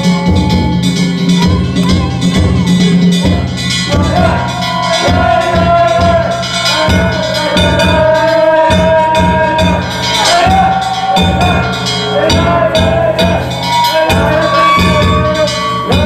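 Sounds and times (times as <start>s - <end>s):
clanging hand gongs: 0.0s - 16.0s
taiko drum strokes: 0.0s - 16.0s.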